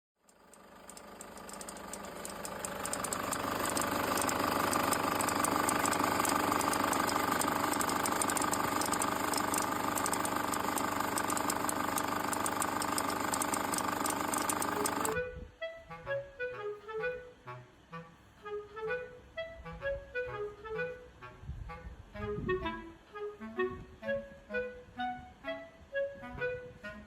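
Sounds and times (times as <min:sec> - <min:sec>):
fast ticking from belt drive: 0:00.2 - 0:15.2
diesel engine idling: 0:00.4 - 0:15.2.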